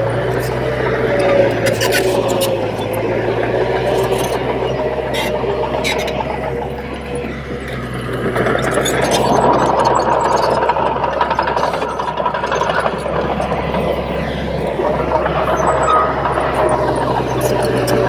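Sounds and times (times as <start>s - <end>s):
bulldozer diesel engine running: 0.0s - 18.0s
rattle and clatter of tracks: 0.0s - 18.0s.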